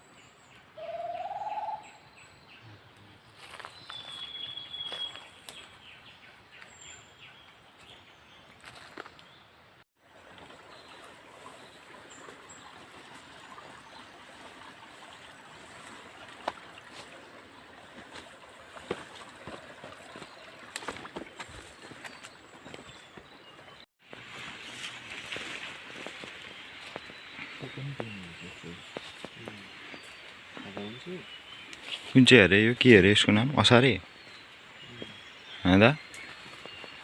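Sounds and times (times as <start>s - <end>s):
distant running water hiss: 10.0s - 22.0s.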